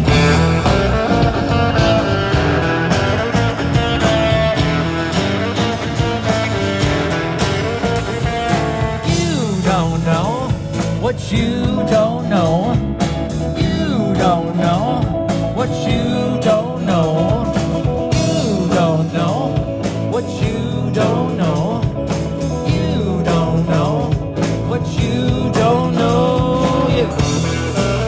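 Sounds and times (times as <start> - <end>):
drum beat: 0.0 - 16.1
lead guitar bending notes: 0.0 - 19.8, 25.0 - 28.0
bass: 0.0 - 28.0.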